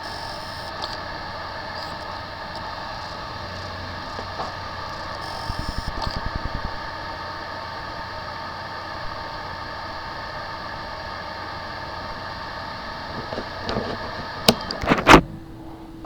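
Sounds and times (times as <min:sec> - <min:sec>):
machine hum: 0:00.0 - 0:16.0
sharp clicks and knocks: 0:13.2 - 0:15.3.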